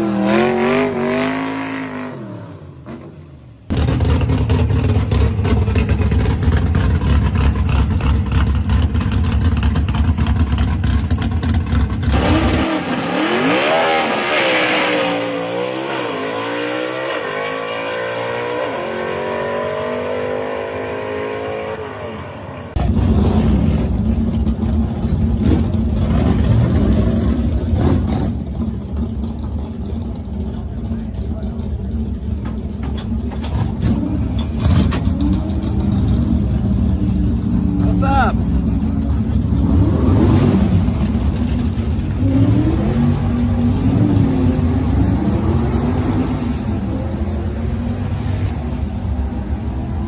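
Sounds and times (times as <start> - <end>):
engine revving: 0.0 - 2.6, 3.7 - 24.0, 39.4 - 48.9
drag car engine rumbling: 2.5 - 13.5, 22.7 - 50.0.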